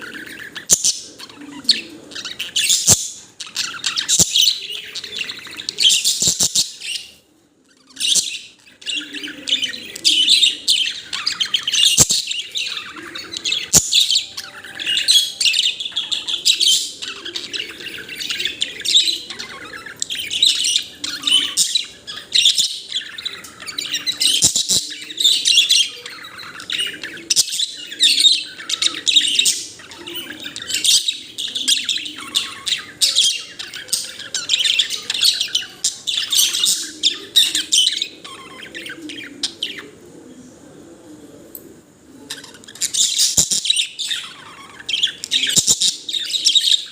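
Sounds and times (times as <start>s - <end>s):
budgerigar chirping and warbling: 0.0s - 7.2s, 7.8s - 39.9s, 42.2s - 46.9s.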